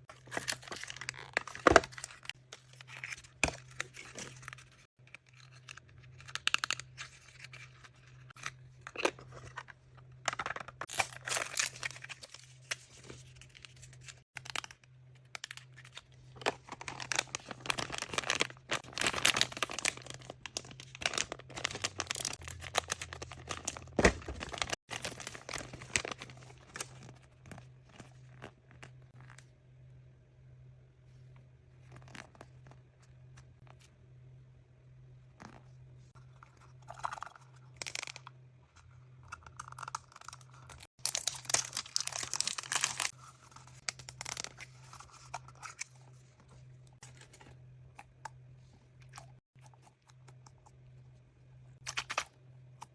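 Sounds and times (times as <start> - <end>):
packaging wrappers crinkling and tearing: 0.1 - 9.6, 10.3 - 27.2, 39.6 - 46.3.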